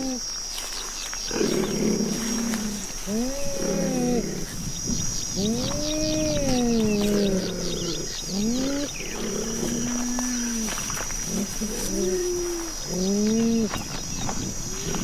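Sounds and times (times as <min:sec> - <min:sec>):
big cat calls: 0:01.3 - 0:04.7, 0:05.3 - 0:13.8.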